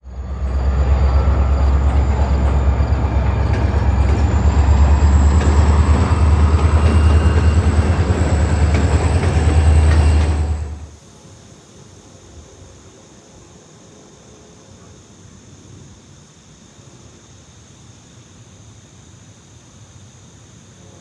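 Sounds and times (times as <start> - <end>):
freight train rumbling past: 0.0 - 11.0
faint high whine: 0.0 - 11.1.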